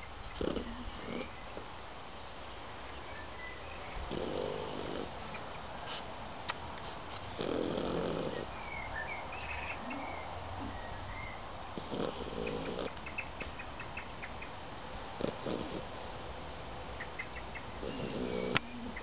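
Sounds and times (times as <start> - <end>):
dog snoring: 0.4 - 1.4, 4.0 - 5.2, 7.4 - 8.6, 11.8 - 13.0, 15.2 - 15.9, 17.8 - 18.6.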